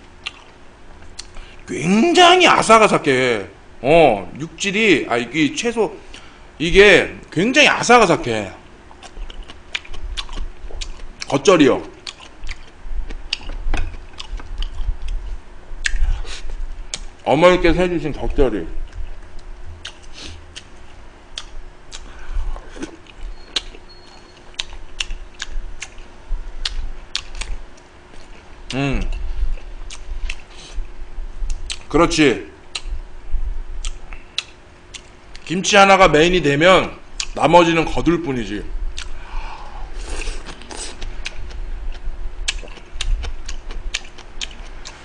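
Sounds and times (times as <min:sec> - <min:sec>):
crunchy chewing: 0:00.2 - 0:01.5, 0:08.9 - 0:17.1, 0:18.8 - 0:30.8, 0:33.8 - 0:35.5, 0:40.0 - 0:45.0
mouth clicks: 0:32.7 - 0:33.0, 0:33.8 - 0:35.5.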